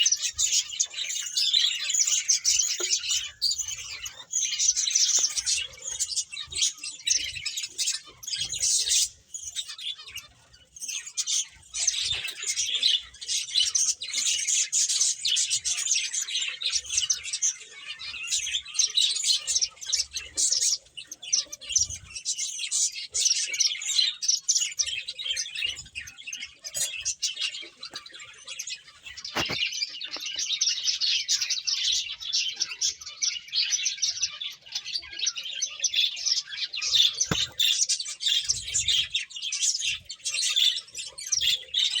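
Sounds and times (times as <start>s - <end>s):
finches chirping: 0.0s - 42.0s.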